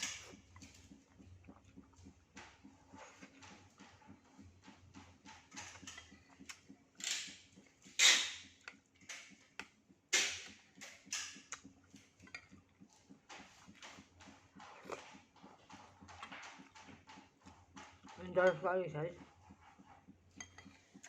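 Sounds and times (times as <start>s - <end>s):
chewing mouth clicks and smacks: 0.0s - 2.2s, 5.6s - 14.0s, 14.6s - 17.0s
slurping: 0.0s - 4.4s, 11.5s - 18.1s.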